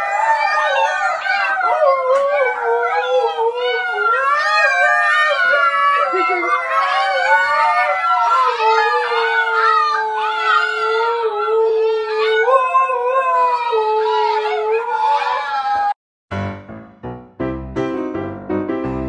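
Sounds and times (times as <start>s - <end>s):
adult dog howling: 0.0s - 16.0s
puppies howling: 0.0s - 16.0s.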